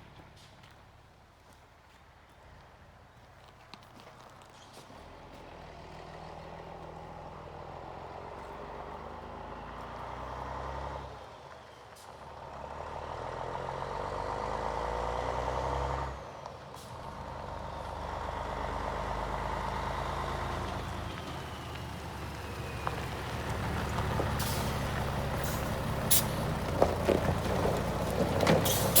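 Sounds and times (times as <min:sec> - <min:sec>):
truck diesel engine pulling: 0:03.9 - 0:29.0
air brake hisses: 0:25.4 - 0:26.4, 0:28.6 - 0:29.0.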